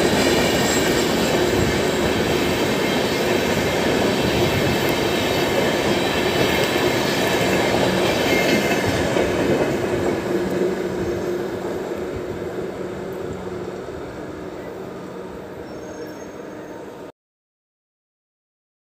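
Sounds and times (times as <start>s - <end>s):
train wheels clattering: 0.0s - 11.4s.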